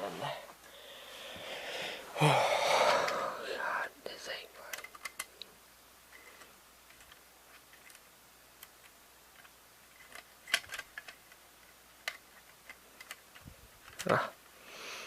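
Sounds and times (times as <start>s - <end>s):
plastic cassette parts clicking: 4.7s - 5.3s, 8.6s - 14.2s.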